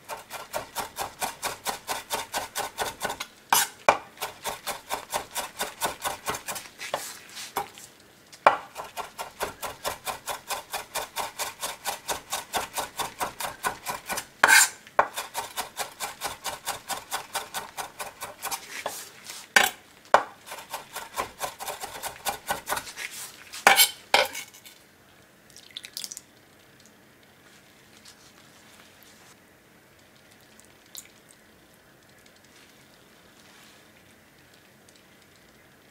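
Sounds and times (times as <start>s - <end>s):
knife chopping on wooden board: 0.1s - 7.8s, 8.5s - 19.0s, 19.6s - 23.0s.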